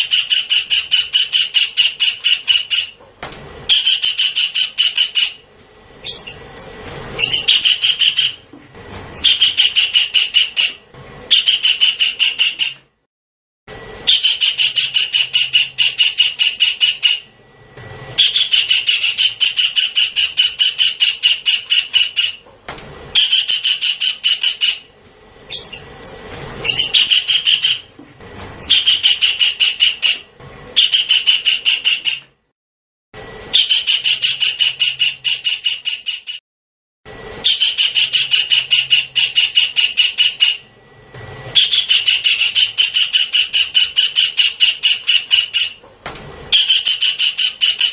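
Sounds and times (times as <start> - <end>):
bird call with harsh rapid notes: 0.0 - 3.0, 3.7 - 5.4, 6.0 - 8.5, 9.1 - 12.8, 14.0 - 17.3, 18.2 - 22.4, 23.2 - 24.9, 25.5 - 27.9, 28.6 - 32.3, 33.5 - 36.4, 37.4 - 40.7, 41.5 - 45.8, 46.5 - 47.9.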